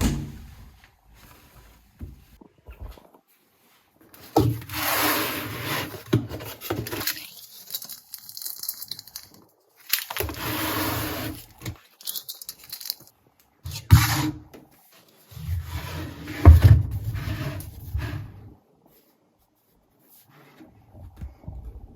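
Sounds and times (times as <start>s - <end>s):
rustling and scraping: 0.0s - 13.2s.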